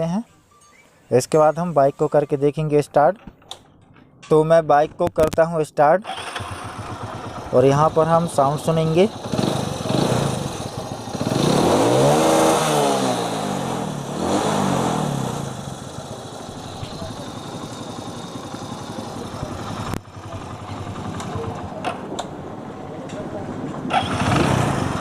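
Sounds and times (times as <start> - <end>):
motorcycle engine revving: 6.0 - 25.0.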